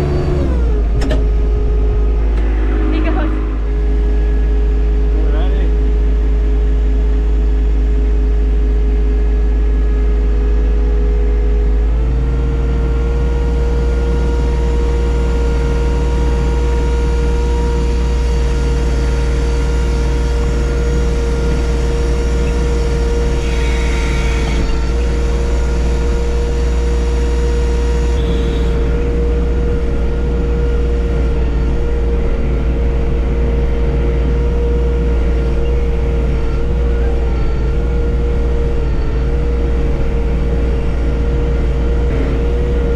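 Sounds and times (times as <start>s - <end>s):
tractor diesel engine running: 9.6s - 42.9s.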